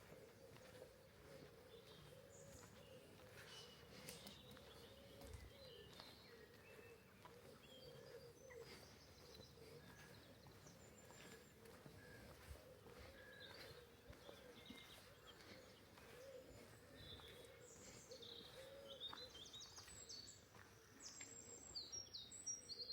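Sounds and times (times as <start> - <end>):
small birds chirping: 0.0 - 22.9.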